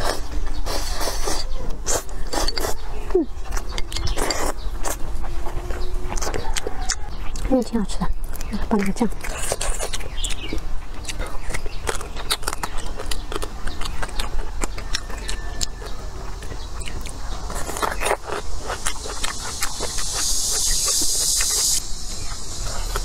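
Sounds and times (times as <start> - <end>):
crunchy biting and chewing: 0.0 - 23.0
steady hiss: 17.2 - 23.0.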